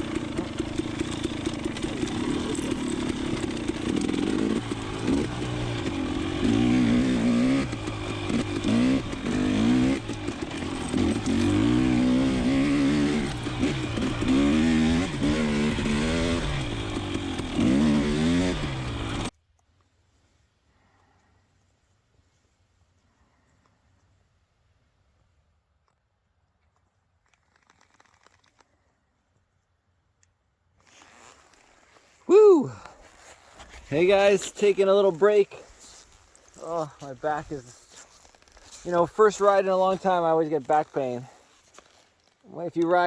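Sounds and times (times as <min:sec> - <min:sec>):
dirt bike engine revving: 0:00.0 - 0:19.3.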